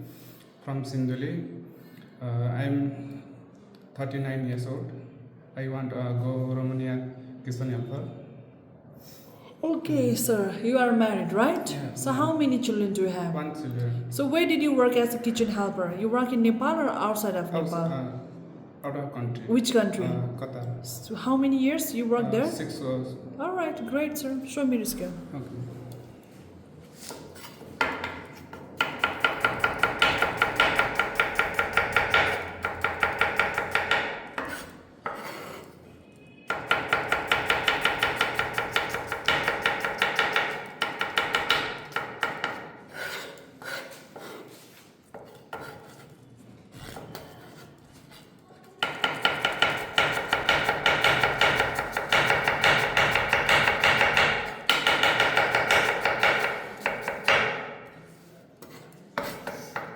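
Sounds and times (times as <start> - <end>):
knife scraping and knocking: 27.0 - 29.6, 34.3 - 35.8, 43.0 - 48.3, 58.6 - 59.9
knife chopping on wooden board: 27.4 - 35.4, 36.5 - 42.7, 48.8 - 57.7.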